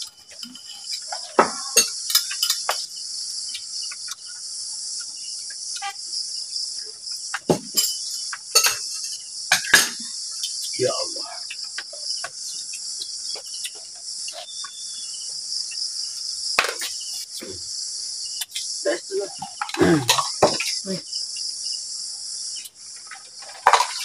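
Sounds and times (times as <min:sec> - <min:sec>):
crickets chirring: 0:00.0 - 0:24.0
low voice: 0:20.8 - 0:21.0.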